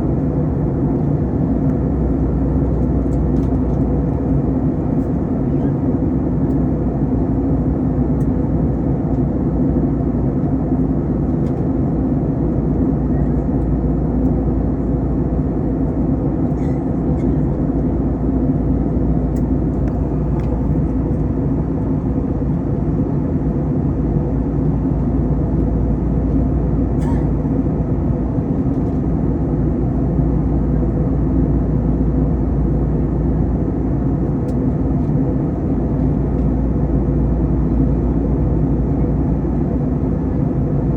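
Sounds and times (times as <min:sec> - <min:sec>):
airliner cabin engine drone: 0:00.0 - 0:40.9.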